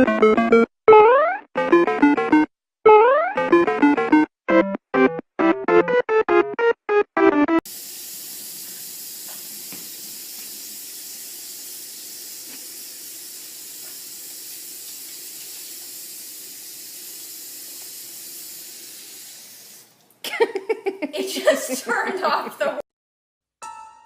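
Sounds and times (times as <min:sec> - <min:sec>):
water running from tap: 0:07.7 - 0:20.1.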